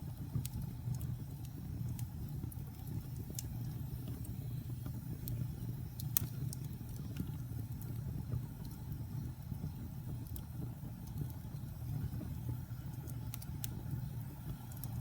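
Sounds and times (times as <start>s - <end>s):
low rumble of flames: 0.0s - 15.0s
wood fire crackling: 0.0s - 15.0s
sharp pops of fire: 0.1s - 8.8s.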